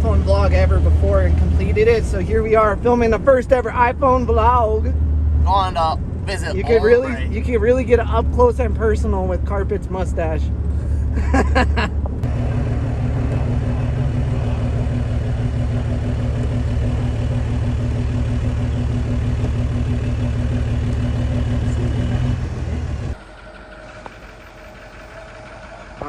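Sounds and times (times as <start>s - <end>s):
vehicle engine droning: 0.0s - 26.0s.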